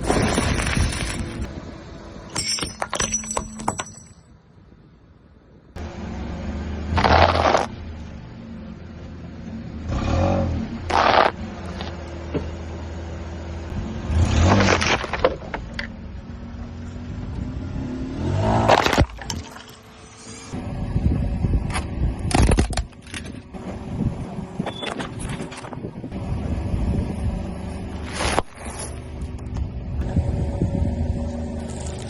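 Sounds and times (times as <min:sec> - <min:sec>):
car engine hum: 0:04.8 - 0:32.0.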